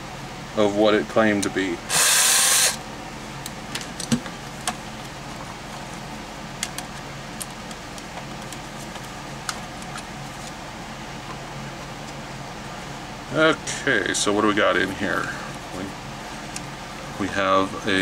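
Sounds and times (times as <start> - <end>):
steady low hum: 0.0 - 18.0
loud burst of noise: 1.9 - 2.8.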